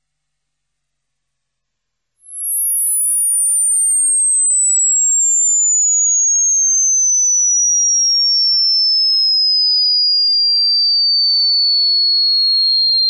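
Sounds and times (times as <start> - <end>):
electronic sine tone sweeping downward: 0.0 - 13.0.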